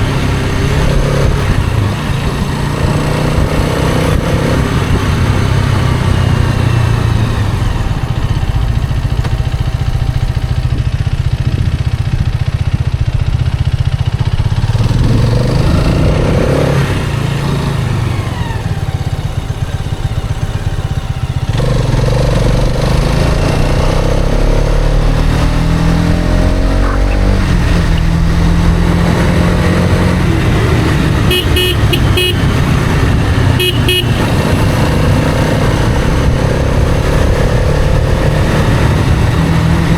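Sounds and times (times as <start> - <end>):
motorcycle engine revving: 0.0 - 39.9
vehicle horn toots: 31.0 - 35.4.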